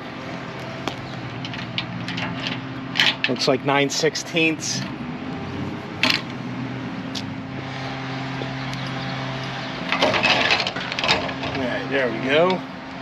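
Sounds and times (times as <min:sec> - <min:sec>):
clicking and rattling: 0:00.8 - 0:03.5, 0:08.7 - 0:11.7.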